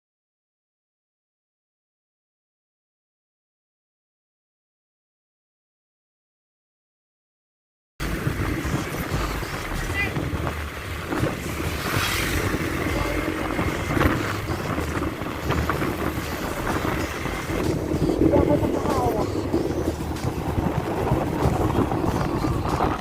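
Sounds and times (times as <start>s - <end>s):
motorcycle engine: 8.0s - 23.0s
wind buffeting microphone: 8.0s - 23.0s.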